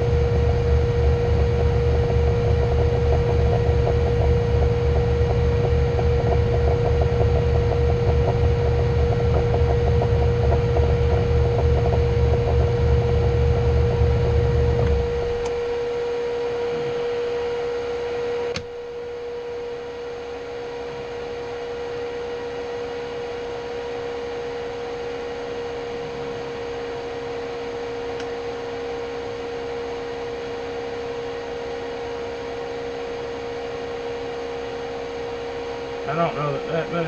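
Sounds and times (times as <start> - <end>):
shop machinery electric hum: 0.0 - 37.0
sharp click: 18.5 - 18.7.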